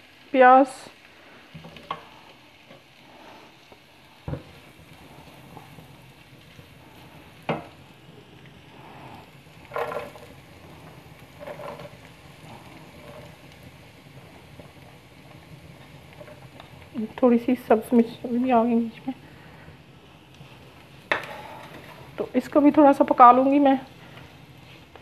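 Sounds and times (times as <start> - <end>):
garlic sizzling in oil: 0.0 - 25.0
spatula knocking and scraping pan: 9.6 - 10.4, 11.4 - 12.0, 21.1 - 22.3.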